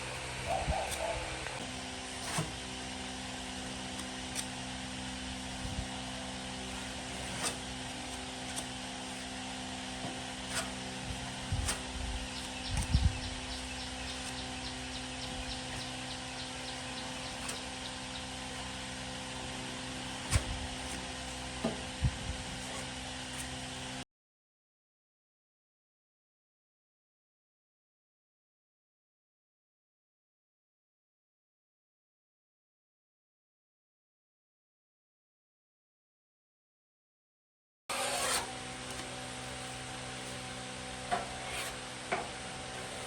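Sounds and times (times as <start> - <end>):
mechanical hum with held tones: 0.0 - 24.0, 37.9 - 43.0.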